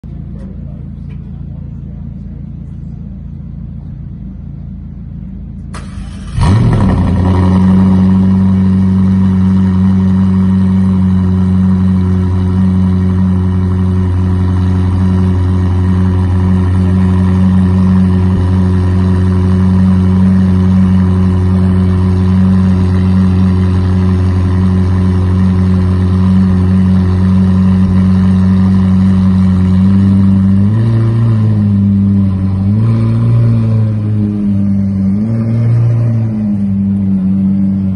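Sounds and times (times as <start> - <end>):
car engine starting and idling: 0.0 - 37.9.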